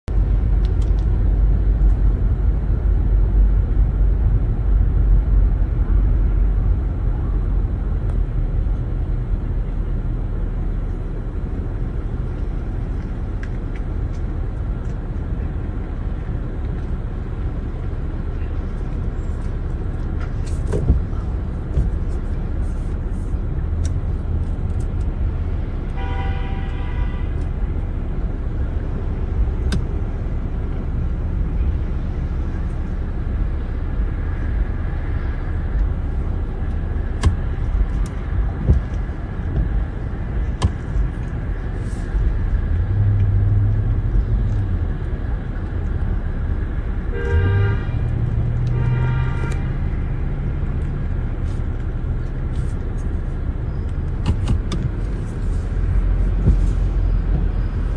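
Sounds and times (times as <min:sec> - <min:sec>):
vehicle engines rumbling: 0:00.0 - 0:57.9
car horn honking: 0:25.9 - 0:27.4, 0:47.1 - 0:48.0, 0:48.7 - 0:49.8.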